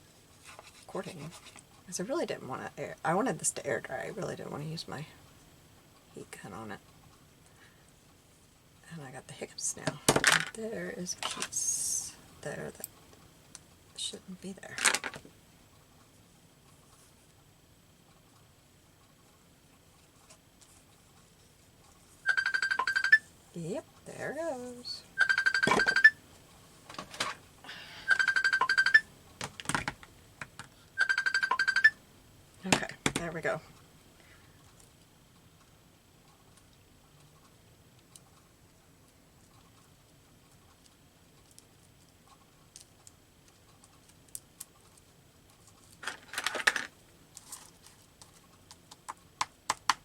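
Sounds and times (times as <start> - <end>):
mobile phone ringtone: 22.3 - 23.2, 25.2 - 26.2, 27.9 - 29.1, 31.0 - 32.0.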